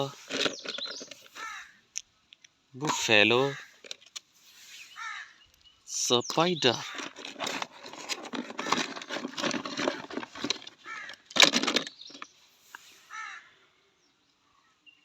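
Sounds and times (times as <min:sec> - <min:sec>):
plastic toys clattering: 0:00.0 - 0:01.6, 0:02.8 - 0:04.2, 0:06.7 - 0:12.4.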